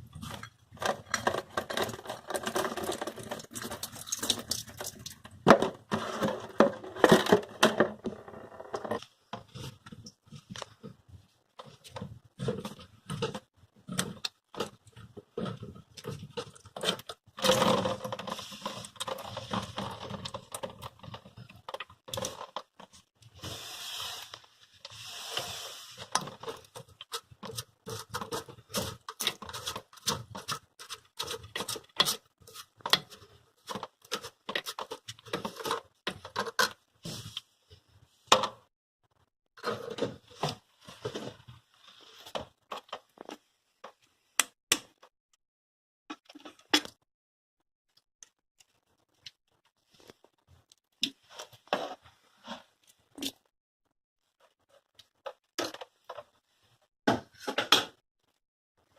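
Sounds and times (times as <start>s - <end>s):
plastic parts clicking and knocking: 0.0s - 23.2s, 26.0s - 36.8s, 46.1s - 47.0s, 54.5s - 56.4s.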